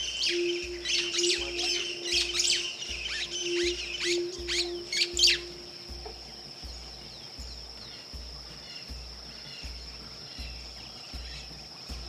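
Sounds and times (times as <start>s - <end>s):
harsh bird squawk: 0.0s - 6.2s
small birds chirping: 0.0s - 12.0s
steady high-pitched drone: 0.0s - 12.0s.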